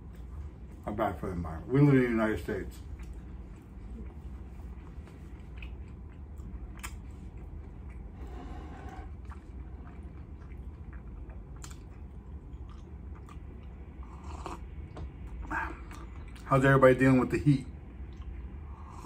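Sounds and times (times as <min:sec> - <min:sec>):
steady low hum: 0:00.0 - 0:19.0
mouth chewing: 0:02.8 - 0:08.2, 0:08.8 - 0:14.6.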